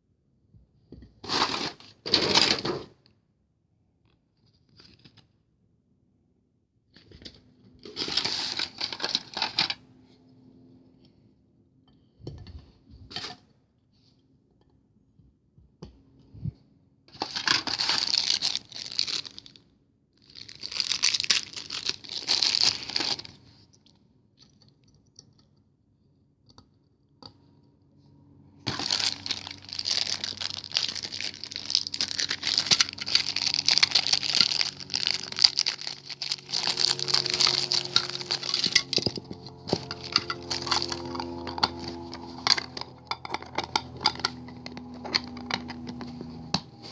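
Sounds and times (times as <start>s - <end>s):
packaging being torn and crinkled: 7.8s - 9.8s, 17.2s - 19.6s, 20.2s - 23.4s, 28.7s - 42.8s.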